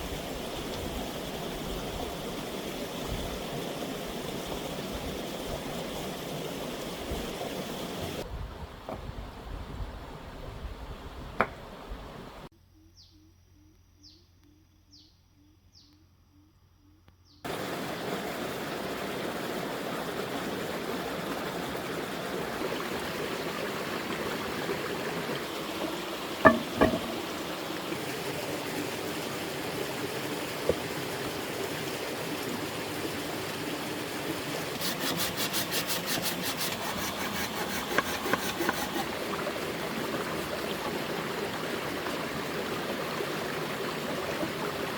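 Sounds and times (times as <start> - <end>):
flowing stream: 0.0 - 12.5, 17.5 - 44.9
knocks: 25.8 - 27.4.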